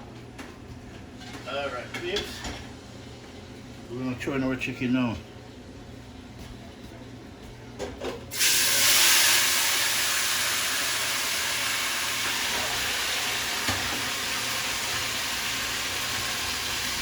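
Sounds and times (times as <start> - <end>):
chicken sizzling in hot pot: 8.3 - 17.0.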